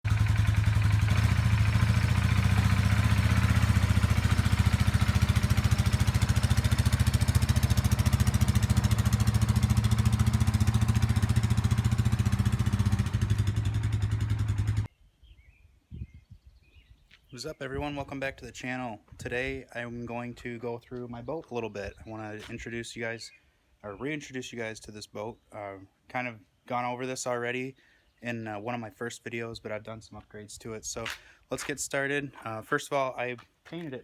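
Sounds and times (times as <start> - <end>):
engine running steadily: 0.1 - 14.9.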